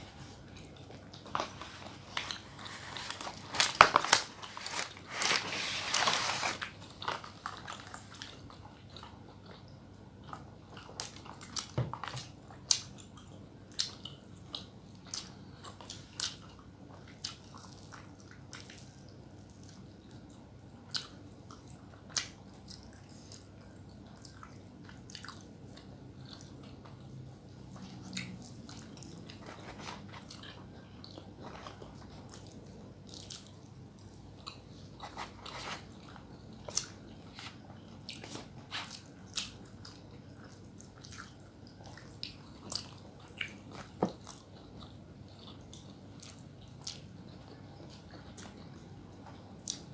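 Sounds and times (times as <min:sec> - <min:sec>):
chewing and biting food: 0:19.6 - 0:49.9.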